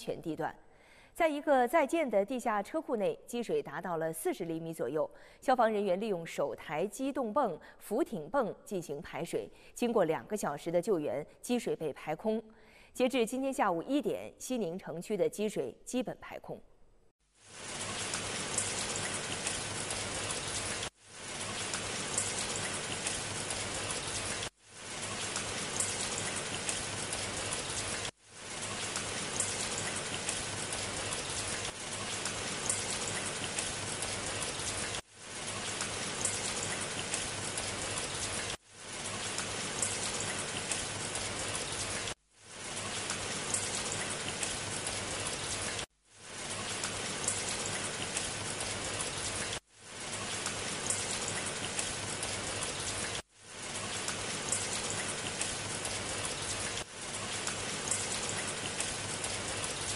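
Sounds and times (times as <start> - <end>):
heavy rain hissing: 17.4 - 59.9.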